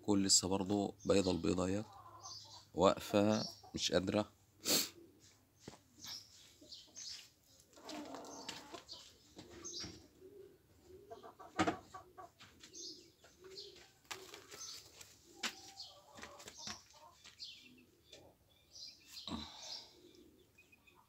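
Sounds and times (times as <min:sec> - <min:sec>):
faint low bird calls: 0:04.8 - 0:21.0
scuffs: 0:12.4 - 0:17.5.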